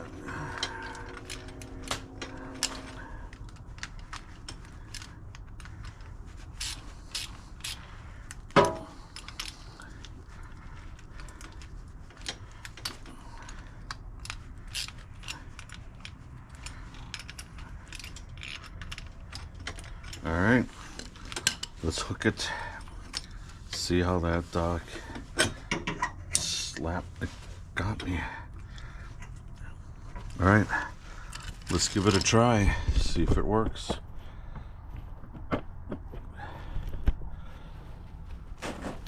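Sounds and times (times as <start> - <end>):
ratchet wrench clicking: 6.6 - 7.8.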